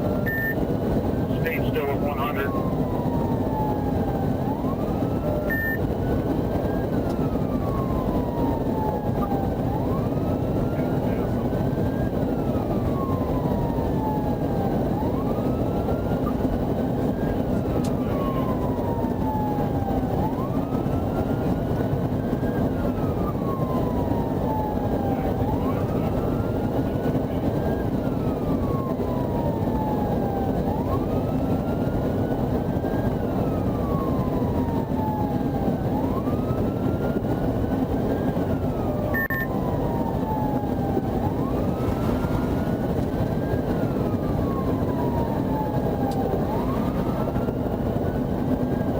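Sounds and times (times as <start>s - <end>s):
police siren wailing: 0.0s - 48.9s
road and engine rumble: 0.0s - 48.9s.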